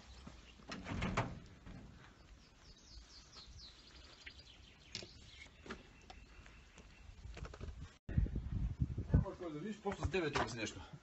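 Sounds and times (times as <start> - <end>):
songbird singing: 0.0 - 8.0.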